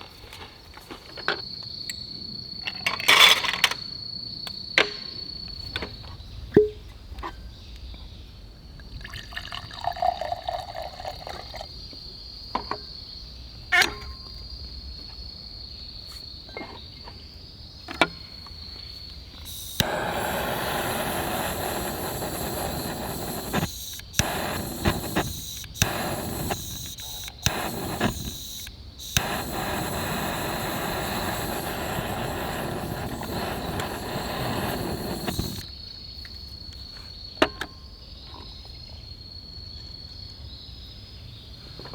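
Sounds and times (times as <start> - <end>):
insects trilling: 0.6 - 41.7
even hissing noise: 18.9 - 35.9.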